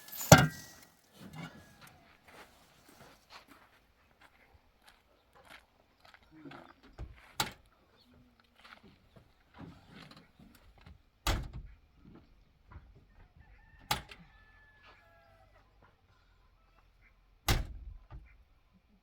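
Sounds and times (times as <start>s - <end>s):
sharp thuds: 0.0s - 0.8s.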